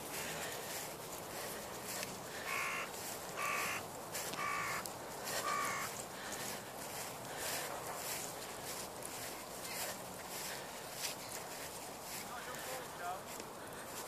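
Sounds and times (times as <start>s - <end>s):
bird harsh calls: 2.3s - 6.6s.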